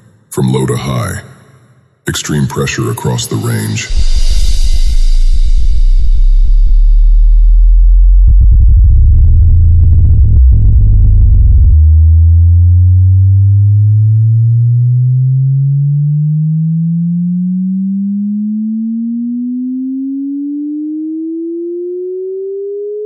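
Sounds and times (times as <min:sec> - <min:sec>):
rising sine sweep tone: 0:03.9 - 0:23.0.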